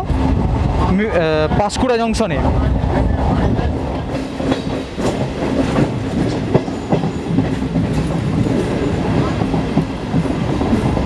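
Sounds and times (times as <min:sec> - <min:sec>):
train wheels rumbling: 0:00.0 - 0:11.0
wheels clacking over rail joints: 0:03.7 - 0:11.0.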